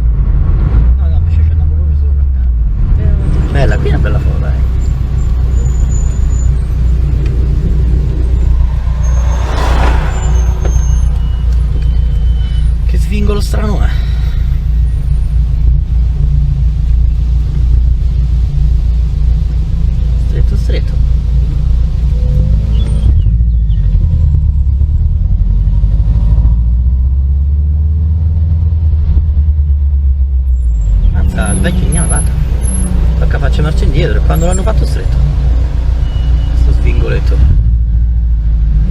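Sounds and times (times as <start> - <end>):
car engine and road noise: 0.0 - 38.9
brief rush of noise: 7.1 - 12.8.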